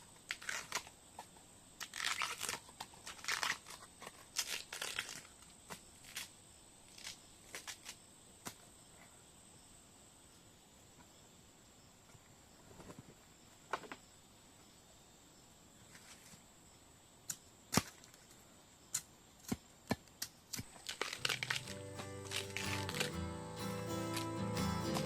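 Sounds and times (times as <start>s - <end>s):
insects droning: 4.4s - 25.0s
sharp snaps and knocks: 17.3s - 18.2s.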